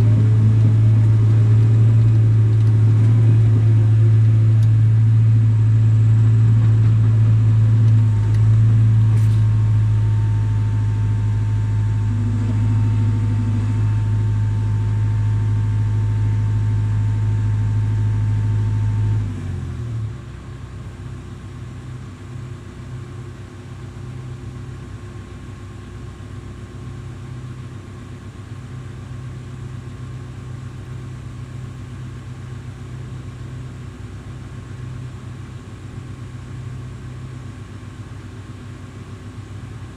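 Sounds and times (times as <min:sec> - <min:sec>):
faint high whine: 0:00.0 - 0:19.2
heavy diesel engine running: 0:00.0 - 0:39.9.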